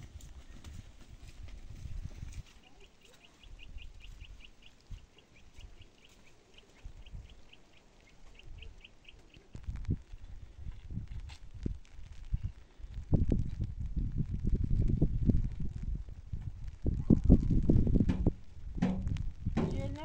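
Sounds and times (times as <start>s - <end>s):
footsteps on dirt and stone: 0.0s - 7.2s, 9.1s - 12.4s
bird chirping: 2.6s - 9.5s.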